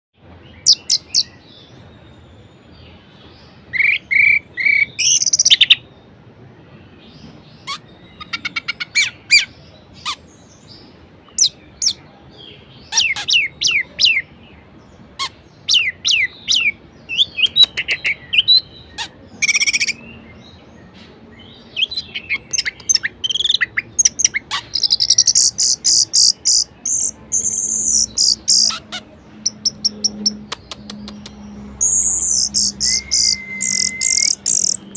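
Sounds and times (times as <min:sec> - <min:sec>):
thrush singing: 0:24.5 - 0:34.9.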